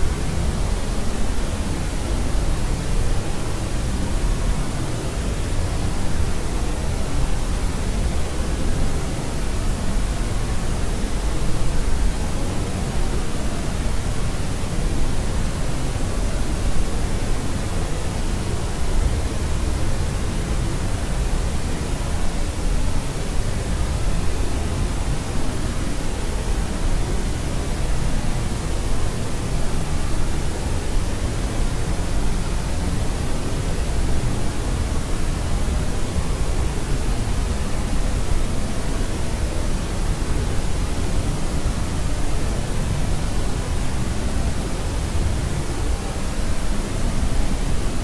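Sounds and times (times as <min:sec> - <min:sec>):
electronic white noise hiss: 0:00.0 - 0:48.0.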